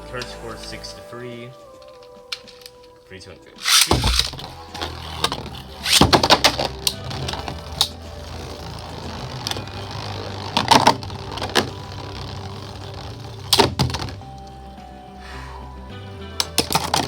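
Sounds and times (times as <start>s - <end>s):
spinning tops whirring: 3.6s - 13.7s.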